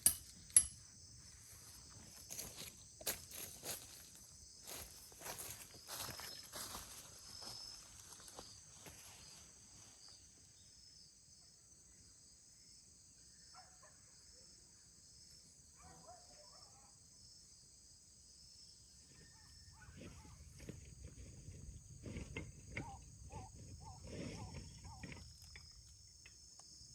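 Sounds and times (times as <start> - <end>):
faint insect calls: 0.0 - 26.9
insect trilling: 22.4 - 26.1.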